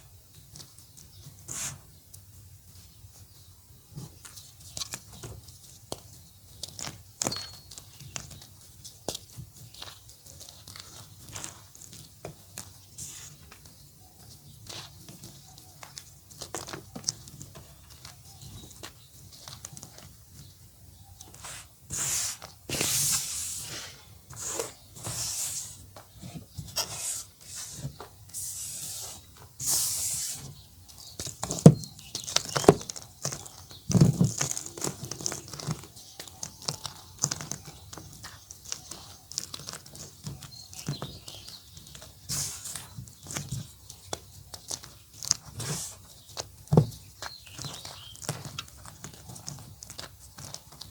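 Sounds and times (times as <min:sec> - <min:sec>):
powdery chalk crunching: 0:00.4 - 0:03.3, 0:03.9 - 0:50.9.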